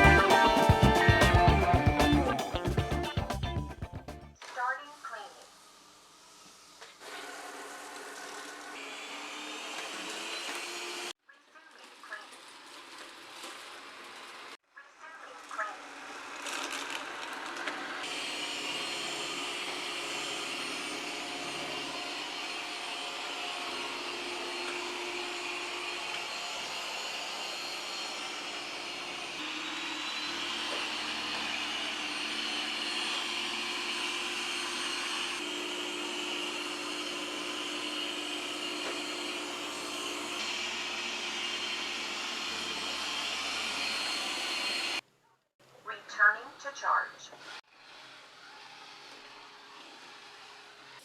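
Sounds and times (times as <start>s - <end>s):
robot vacuum suction whir: 15.4s - 45.0s.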